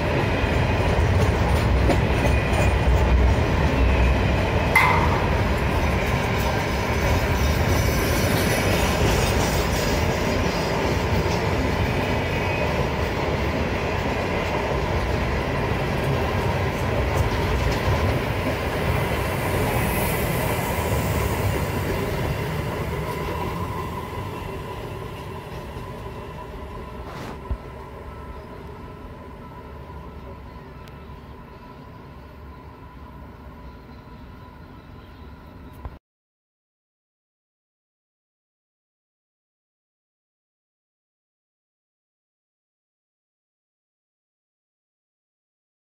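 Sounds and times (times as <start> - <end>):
freight train rumbling past: 0.0 - 35.8.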